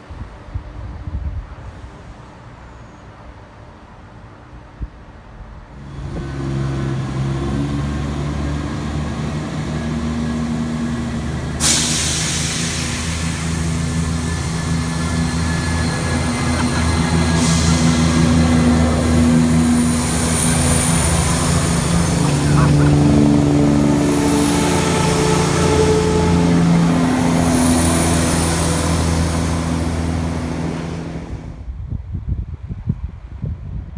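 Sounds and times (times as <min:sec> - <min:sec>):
diesel train engine droning: 0:03.3 - 0:32.0
loud hiss of air: 0:10.5 - 0:31.6.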